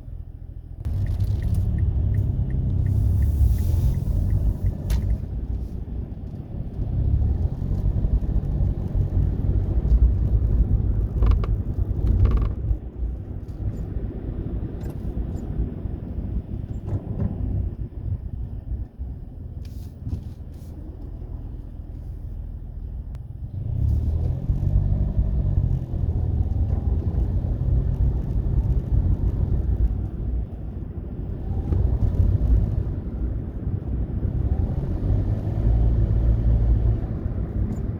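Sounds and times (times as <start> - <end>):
car road and engine rumble: 0.0 - 37.9
intermittent brake noise: 0.8 - 6.0.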